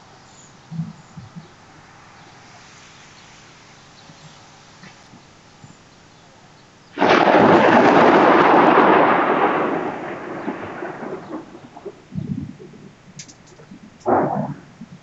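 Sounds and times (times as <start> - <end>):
thunderclap: 7.0 - 15.0.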